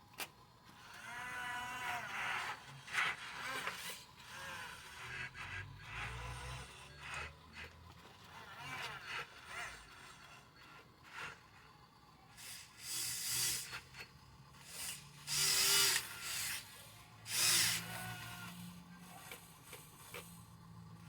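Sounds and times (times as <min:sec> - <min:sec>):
small motor whirring: 0:00.2 - 0:21.0.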